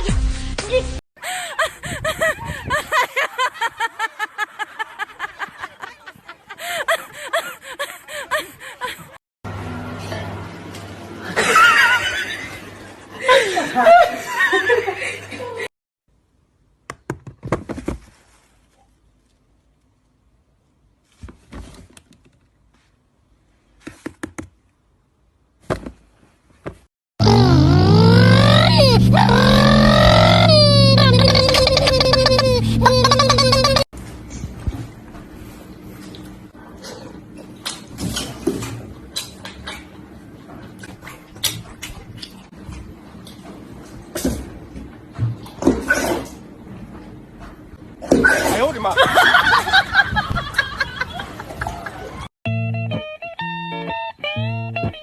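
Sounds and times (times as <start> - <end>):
high-pitched laugh-like squeals: 1.3 - 6.0, 27.2 - 33.9.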